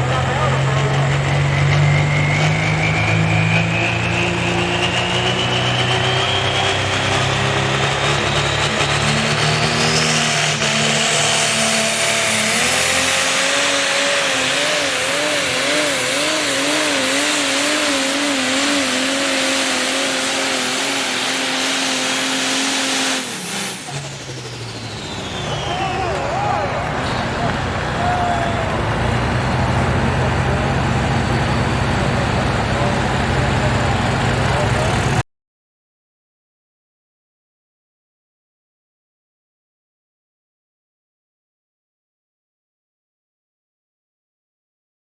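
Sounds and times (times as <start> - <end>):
tractor engine running flat out: 0.0 - 35.2
high climbing whine: 23.8 - 34.9.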